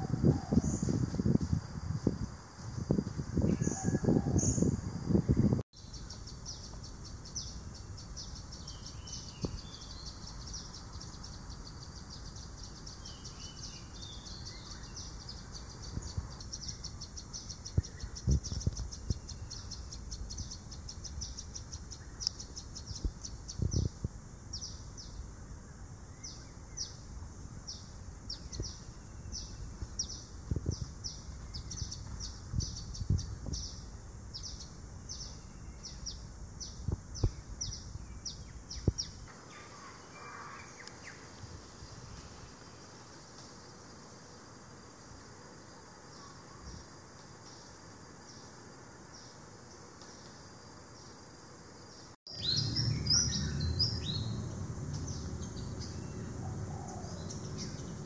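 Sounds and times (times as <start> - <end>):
lower bird calls: 3.1 - 27.0, 52.3 - 58.0
birds chirping: 52.3 - 58.0.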